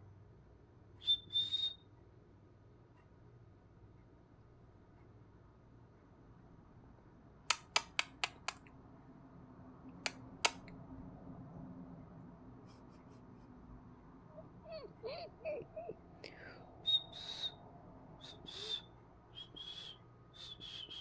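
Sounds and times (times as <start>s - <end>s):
sharp clicks: 7.5s - 8.7s, 10.0s - 10.7s.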